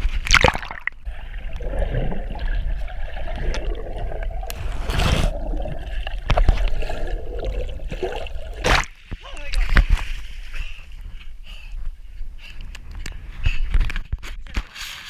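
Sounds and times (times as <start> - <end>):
pond water sloshing and splashing: 0.0 - 9.0.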